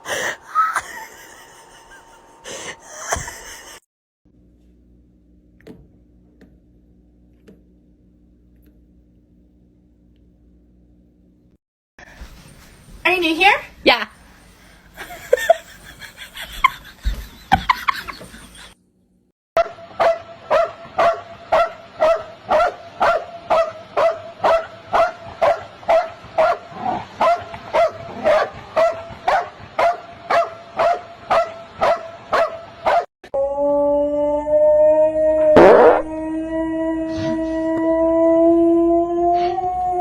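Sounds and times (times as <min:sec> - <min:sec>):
dog barking: 0:19.6 - 0:33.1.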